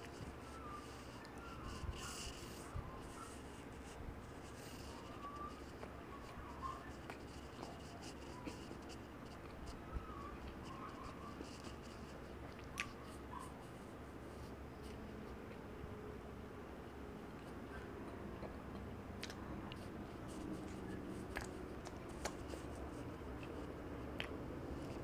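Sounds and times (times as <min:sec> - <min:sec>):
chewing and wet mouth sounds: 0:10.3 - 0:13.4, 0:17.3 - 0:25.0.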